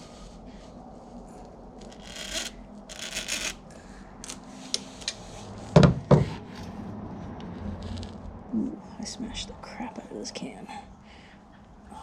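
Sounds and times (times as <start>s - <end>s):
loud knocks: 5.8s - 6.4s.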